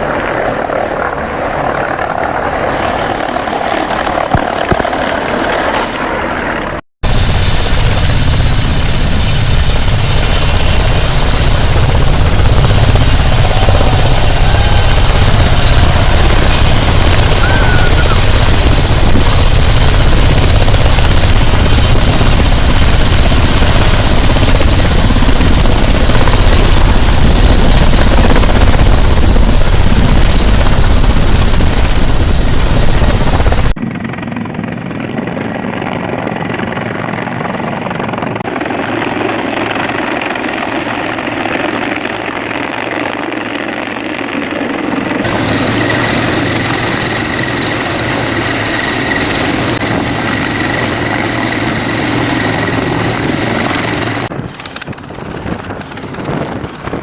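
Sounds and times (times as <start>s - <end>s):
helicopter rotor and turbine: 0.0s - 57.0s
thin steady whine: 45.3s - 54.3s.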